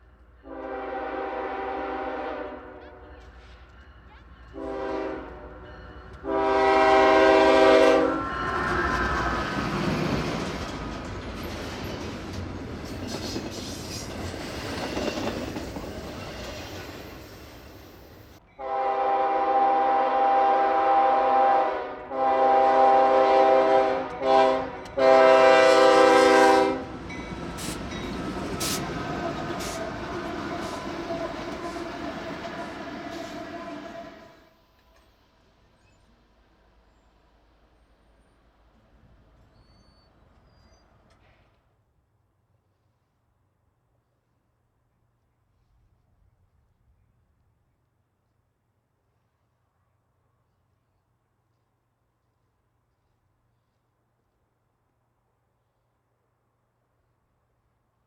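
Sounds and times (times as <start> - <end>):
train rumble: 0.0 - 41.6
locomotive air horn: 0.4 - 3.4, 4.5 - 9.7, 18.6 - 26.9, 28.6 - 34.6
train wheel clatter: 8.5 - 18.4.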